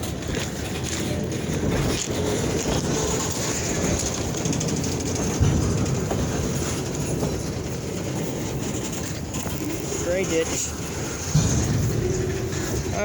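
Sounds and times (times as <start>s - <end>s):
train wheels clicking on rails: 0.0s - 13.0s
thump: 11.3s - 12.9s.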